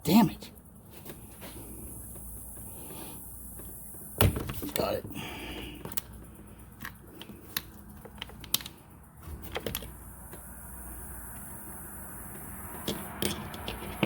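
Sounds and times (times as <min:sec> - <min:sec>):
plastic and metal parts clicking: 0:06.8 - 0:10.4.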